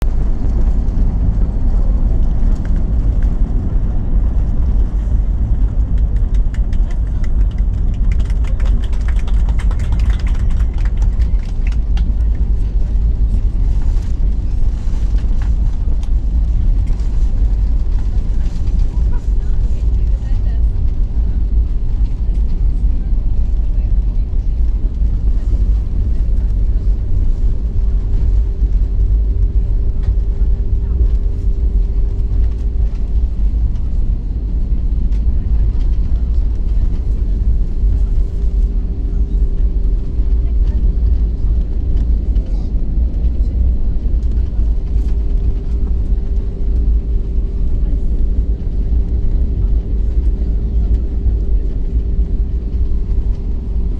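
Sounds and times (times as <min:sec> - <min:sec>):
aircraft engine whine: 0:00.0 - 0:53.9
airliner deep rumble: 0:00.0 - 0:53.9
rattles and clicks: 0:05.4 - 0:12.6.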